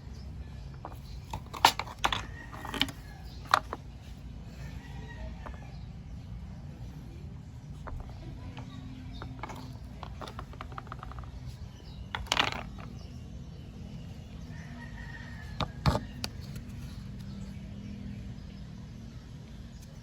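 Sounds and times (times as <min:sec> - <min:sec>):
rustling scrape: 0:07.8 - 0:13.0.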